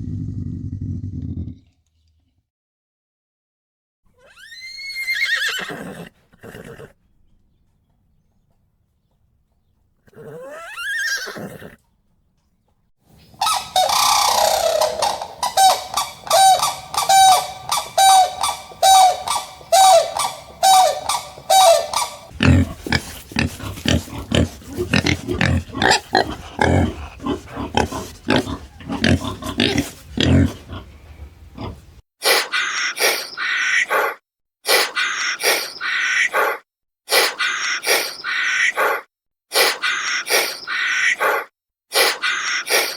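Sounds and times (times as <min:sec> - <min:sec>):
harsh animal calls: 0:13.3 - 0:42.9
short animal call: 0:13.4 - 0:30.3
low rough grunts: 0:22.3 - 0:32.0.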